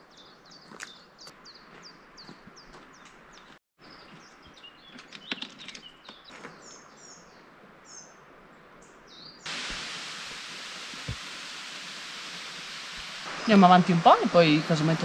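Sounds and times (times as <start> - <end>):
small birds chirping: 0.0 - 8.2
loud rushing hiss: 9.5 - 15.0.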